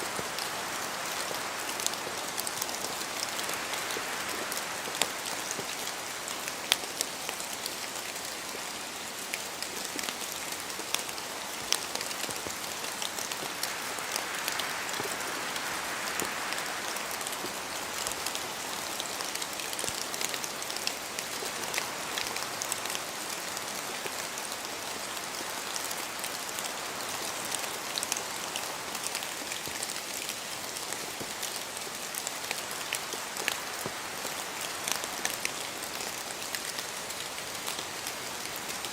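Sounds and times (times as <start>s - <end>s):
steady rain in forest: 0.0s - 38.9s
wind gusts: 12.3s - 19.0s.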